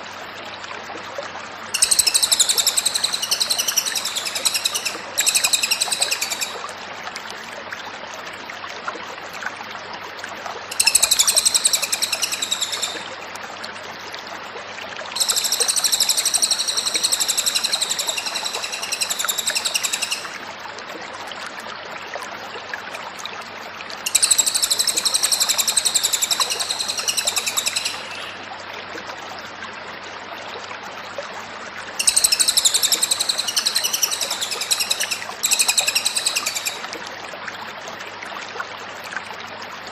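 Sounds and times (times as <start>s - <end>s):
bird chattering song: 1.8s - 6.6s, 10.7s - 13.0s, 15.2s - 20.4s, 24.1s - 28.4s, 32.0s - 36.9s.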